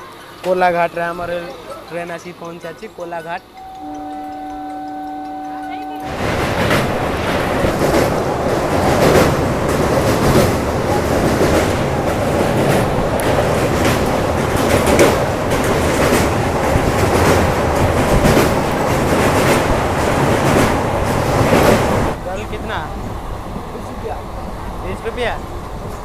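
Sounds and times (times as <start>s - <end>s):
train rumble and rattle: 0.0s - 26.0s
faint knocks from train wheels: 2.4s - 22.2s.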